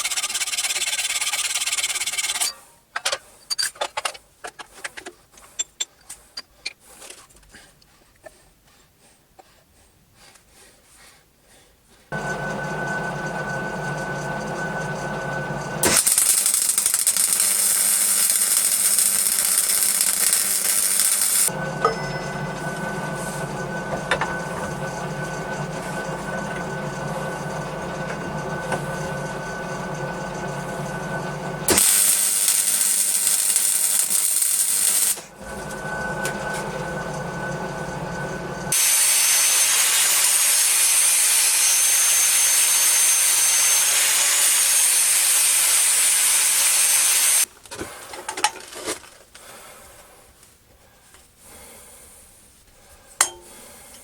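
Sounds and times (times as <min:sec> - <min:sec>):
power tool working metal: 0:12.1 - 0:47.5.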